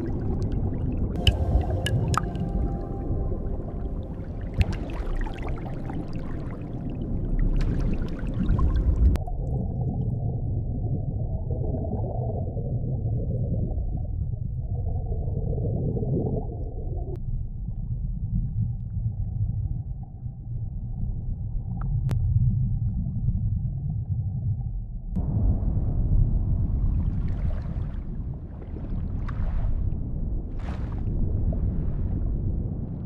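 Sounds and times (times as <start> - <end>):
underwater clicks and tones: 0.0 - 9.3
water gurgling: 0.0 - 17.2
underwater rumble: 0.0 - 33.0.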